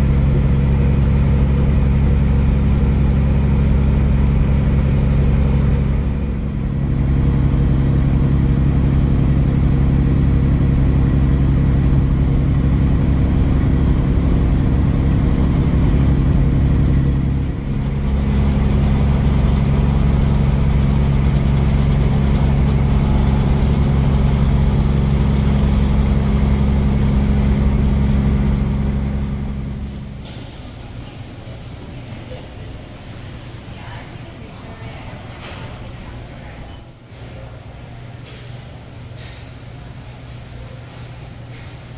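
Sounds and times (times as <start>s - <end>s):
truck diesel engine running: 0.0s - 31.0s.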